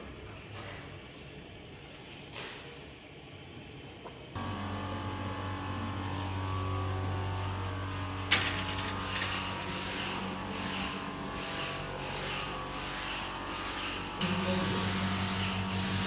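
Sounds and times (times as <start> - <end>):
electrical hum: 4.3 - 16.0.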